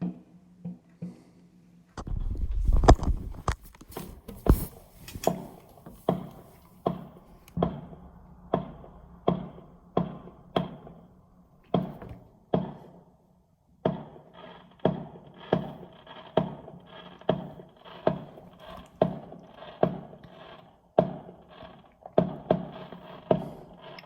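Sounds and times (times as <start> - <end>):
low rumble: 7.2 - 12.5.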